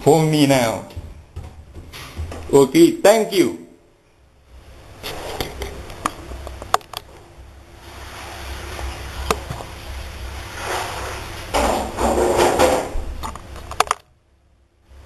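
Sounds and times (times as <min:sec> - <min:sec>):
low rumble and hiss: 0:00.0 - 0:15.0
sharp clicks and knocks: 0:05.4 - 0:07.2, 0:11.6 - 0:14.1.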